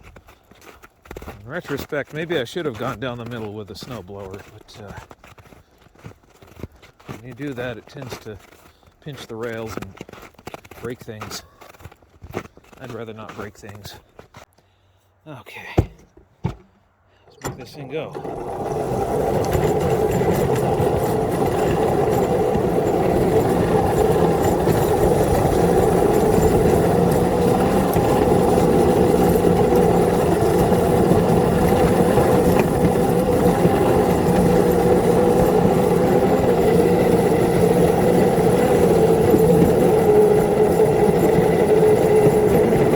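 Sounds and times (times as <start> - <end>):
locomotive traction motors humming: 17.3 - 42.9.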